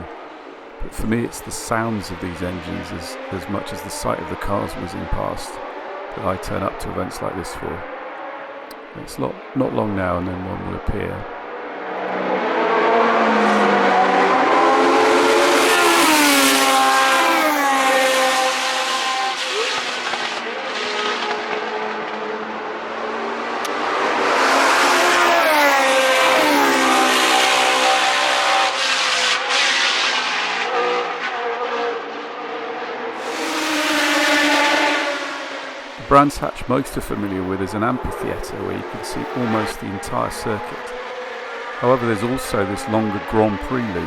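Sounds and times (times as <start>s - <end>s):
racing car engine high revs: 0.0s - 44.0s.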